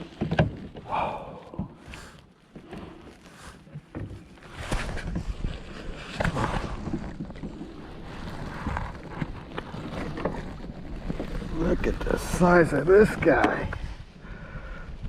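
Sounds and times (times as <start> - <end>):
water splashes: 0.0 - 14.2
wind rumbling on microphone: 4.1 - 15.0.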